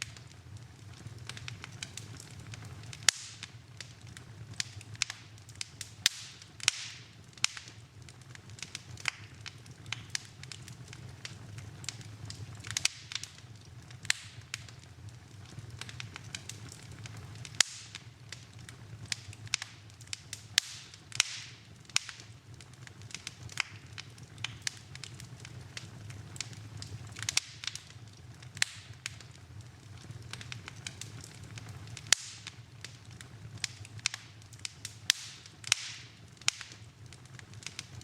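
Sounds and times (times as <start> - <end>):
fire low rumble: 0.0 - 38.0
wood fire crackling and popping: 0.0 - 38.0.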